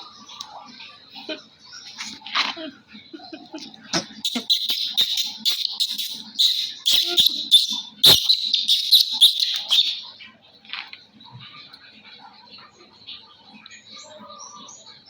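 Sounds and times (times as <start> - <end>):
young monkey squealing: 4.0 - 10.0.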